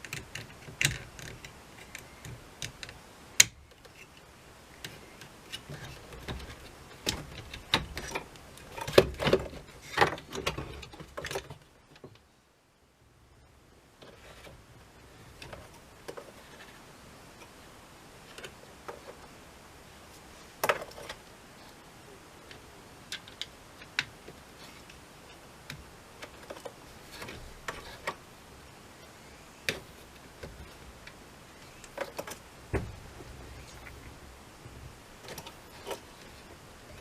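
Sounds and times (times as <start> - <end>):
clicks and taps of small hard parts: 0.0 - 4.0
faint low hum: 0.0 - 37.0.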